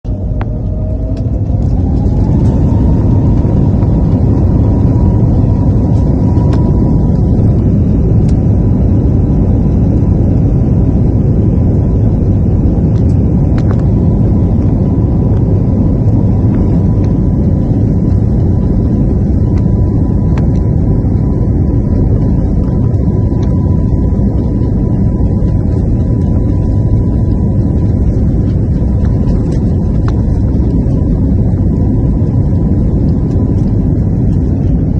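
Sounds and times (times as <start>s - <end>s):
low rumble of rotor wash and wind: 0.0s - 34.9s
drone propellers whining: 0.1s - 9.5s.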